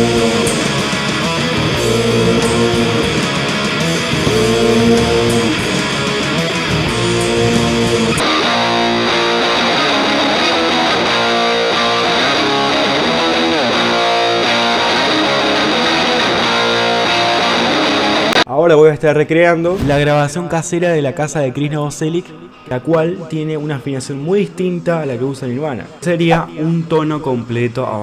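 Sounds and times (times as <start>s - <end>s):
distorted electric guitar riffs: 0.0s - 18.4s.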